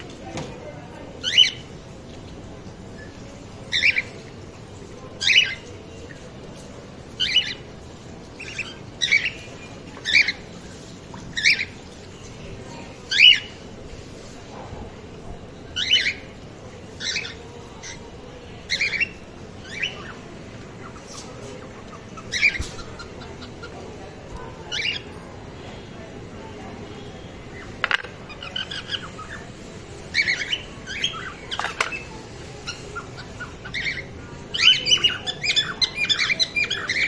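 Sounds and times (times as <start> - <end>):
cockatiels squawking: 32.6 - 37.0.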